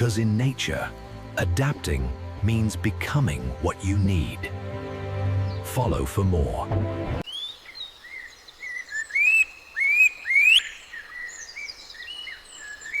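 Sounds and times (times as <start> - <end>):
bird whistling song: 7.2 - 13.0.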